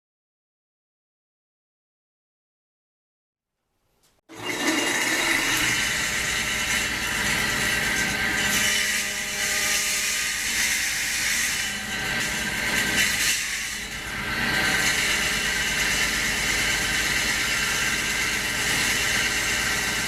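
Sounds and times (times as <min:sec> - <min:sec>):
power saw cutting wood: 0:04.3 - 0:20.0.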